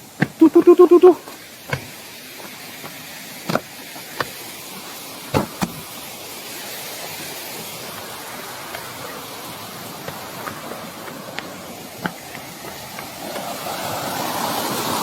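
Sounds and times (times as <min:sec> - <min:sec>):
sharp knocks: 0:00.0 - 0:00.5, 0:01.7 - 0:02.0
waterfall pouring over rock: 0:00.0 - 0:15.0.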